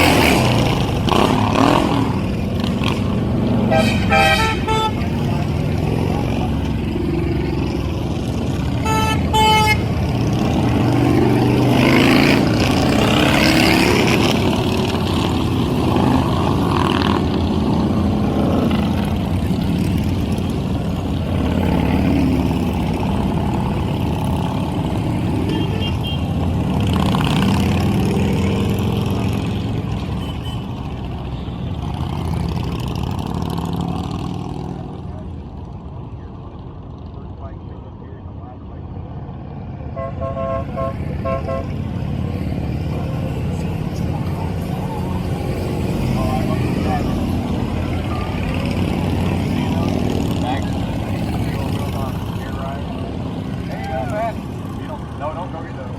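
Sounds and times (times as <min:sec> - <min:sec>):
horn tooting: 0:00.0 - 0:06.6, 0:08.5 - 0:17.2, 0:21.5 - 0:32.3, 0:39.9 - 0:44.8
motorcycle engines revving: 0:00.0 - 0:55.9.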